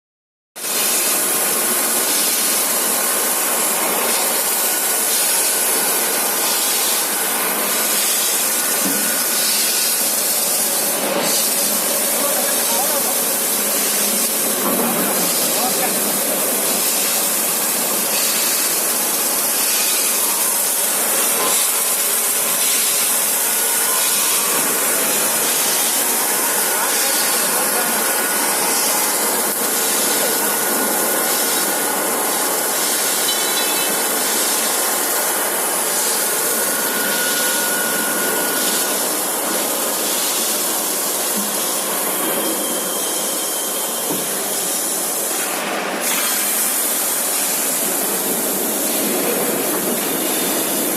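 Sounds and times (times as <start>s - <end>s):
machine hissing: 0.6s - 50.9s
faint machine whine: 35.0s - 39.8s.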